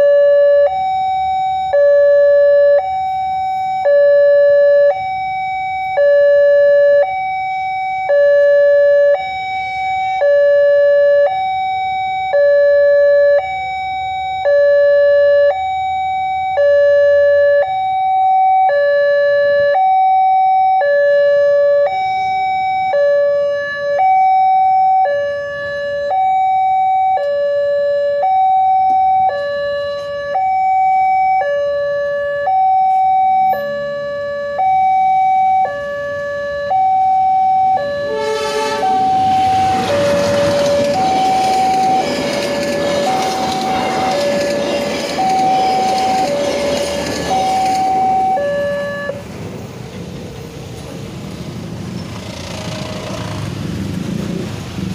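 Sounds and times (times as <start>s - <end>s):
two-tone crossing alarm: 0.0s - 49.5s.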